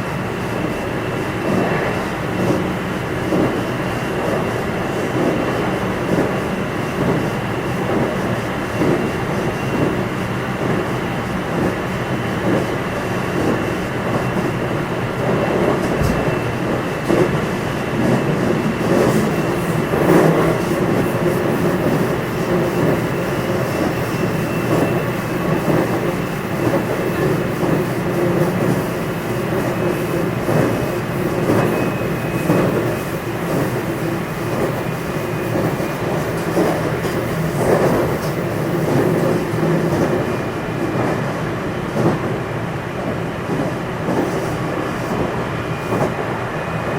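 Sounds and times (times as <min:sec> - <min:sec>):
train wheels rumbling on rail: 0:00.0 - 0:46.9.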